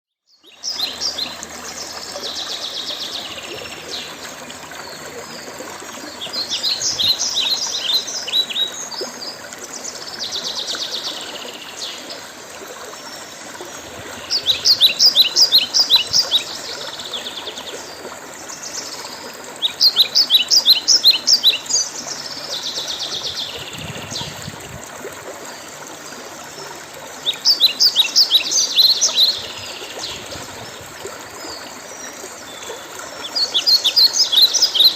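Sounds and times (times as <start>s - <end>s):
songbird singing: 0.2s - 12.2s, 13.0s - 24.6s, 26.6s - 30.8s, 31.4s - 34.9s.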